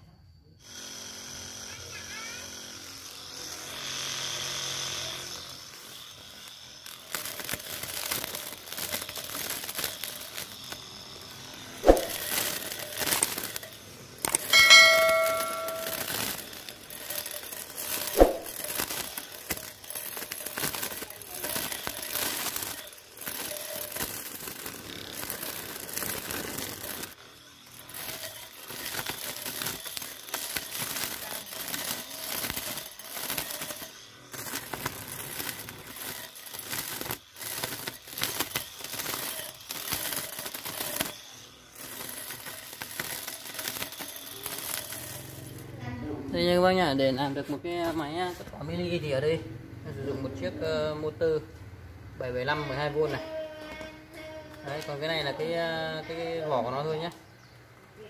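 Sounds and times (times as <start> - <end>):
electric motor whine: 0.6 - 46.5
grass being slashed: 11.8 - 12.8, 18.0 - 18.8.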